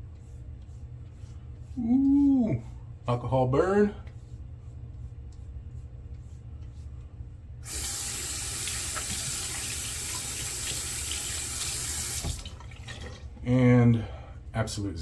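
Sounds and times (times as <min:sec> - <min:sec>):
low steady hum: 0:00.0 - 0:15.0
sink tap turning on: 0:07.6 - 0:13.3
water running into basin: 0:07.6 - 0:13.4.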